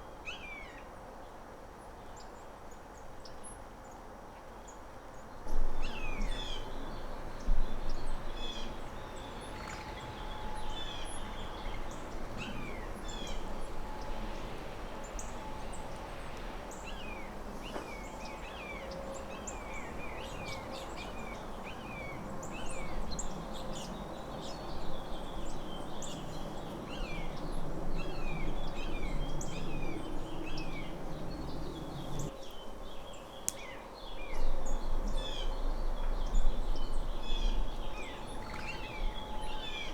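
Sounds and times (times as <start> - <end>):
small birds chirping: 16.7 - 34.5.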